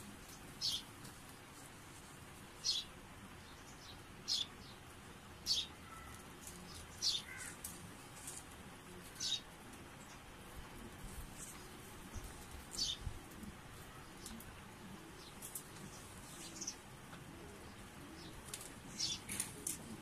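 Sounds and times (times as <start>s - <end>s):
small bird chirping: 0.2s - 0.9s.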